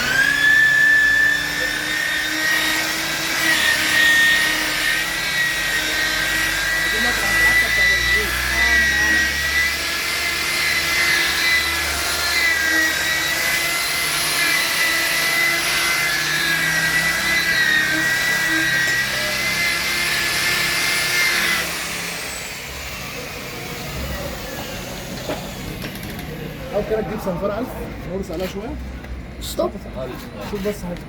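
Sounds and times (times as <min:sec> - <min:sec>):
power tool motor whining: 0:00.0 - 0:27.5.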